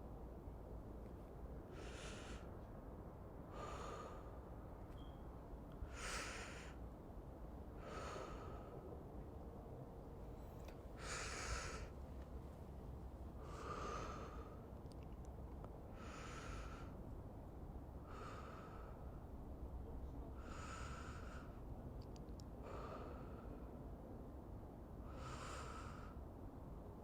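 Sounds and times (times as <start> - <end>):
faint low hum: 0.0 - 27.0
person breathing slowly: 1.6 - 2.6, 3.4 - 4.6, 5.8 - 6.8, 7.8 - 9.1, 11.0 - 12.0, 13.3 - 14.8, 15.9 - 17.1, 18.0 - 19.4, 20.3 - 21.8, 22.5 - 23.9, 25.0 - 26.3.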